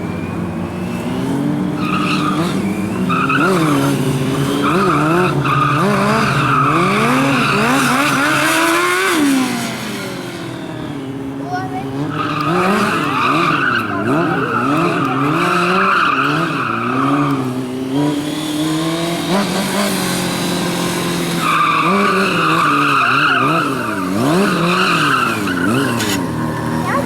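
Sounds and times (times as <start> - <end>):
motorcycle engine revving: 0.0 - 27.0
tyre squealing: 0.2 - 9.2, 11.4 - 17.6, 21.0 - 27.0.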